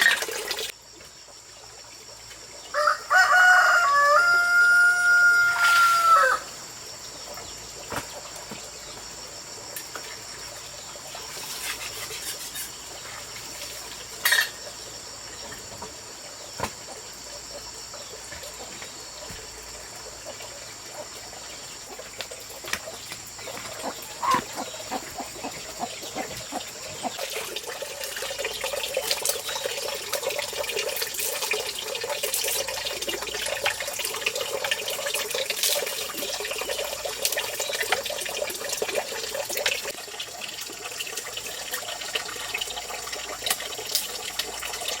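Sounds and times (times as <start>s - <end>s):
water running and splashing: 0.0s - 3.7s, 4.9s - 45.0s
rooster crowing: 2.7s - 6.6s.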